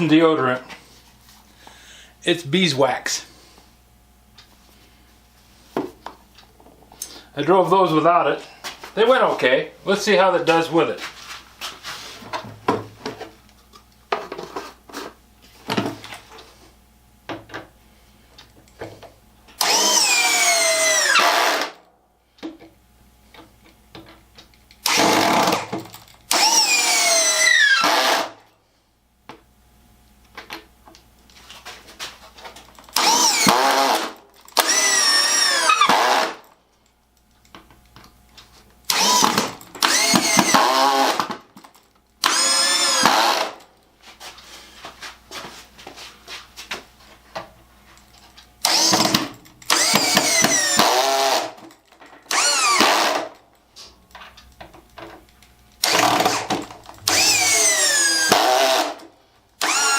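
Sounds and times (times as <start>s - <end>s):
cordless drill driving screws: 19.6s - 21.8s, 24.8s - 28.4s, 32.9s - 36.5s, 38.9s - 41.4s, 42.2s - 43.6s, 48.6s - 51.6s, 52.3s - 53.4s, 55.8s - 59.0s, 59.6s - 59.9s.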